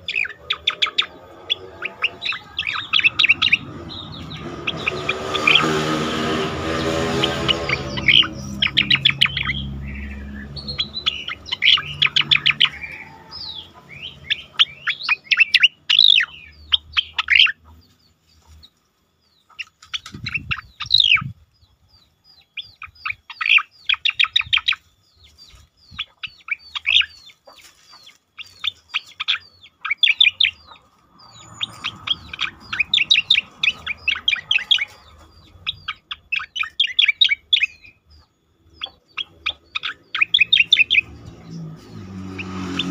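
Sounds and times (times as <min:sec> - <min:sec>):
songbird whistling: 0:00.0 - 0:05.7, 0:07.2 - 0:17.6, 0:28.4 - 0:42.9.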